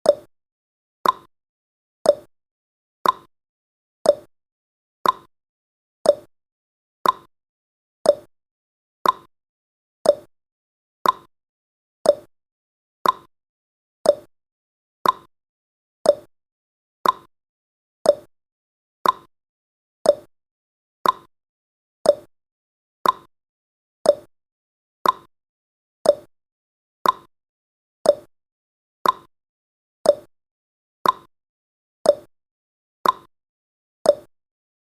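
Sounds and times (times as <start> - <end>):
clock ticking: 1.0 - 1.3, 5.0 - 5.3, 7.0 - 7.3, 8.1 - 8.3, 9.0 - 9.3, 10.1 - 10.3, 11.0 - 11.3, 12.1 - 12.3, 13.0 - 13.3, 14.1 - 14.3, 15.0 - 15.3, 16.1 - 16.3, 17.0 - 17.3, 18.1 - 18.3, 19.0 - 19.3, 20.1 - 20.3, 21.0 - 21.3, 22.1 - 22.3, 23.0 - 23.3, 24.1 - 24.3, 25.0 - 25.3, 26.0 - 26.3, 27.0 - 27.3, 28.1 - 28.3, 29.0 - 29.3, 30.1 - 30.3, 31.0 - 31.3, 32.1 - 32.3, 33.0 - 33.3, 34.1 - 34.3.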